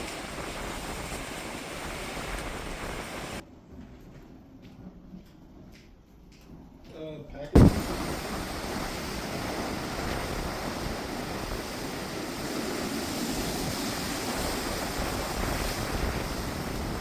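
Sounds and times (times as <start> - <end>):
strong wind gusting: 7.6 - 17.0
wind buffeting microphone: 7.6 - 17.0.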